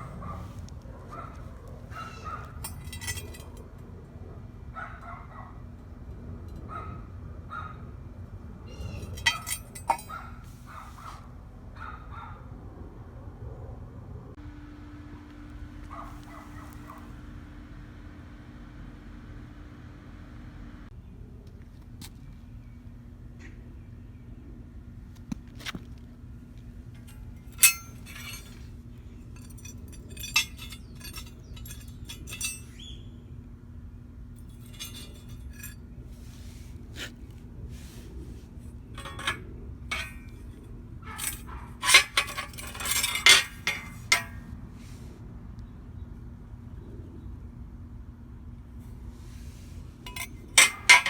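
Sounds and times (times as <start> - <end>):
metal tools clinking: 2.4 - 3.7, 8.8 - 10.2, 27.0 - 32.8, 34.4 - 35.8, 38.8 - 44.4, 50.0 - 51.0
steady low hum: 12.6 - 22.0, 22.7 - 51.0.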